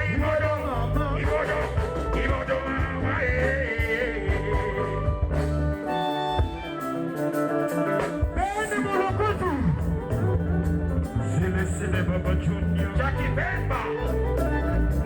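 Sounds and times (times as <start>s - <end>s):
person singing: 0.0s - 5.4s, 11.0s - 15.0s
bass and drums: 0.0s - 15.0s
electric guitar lines: 0.0s - 15.0s.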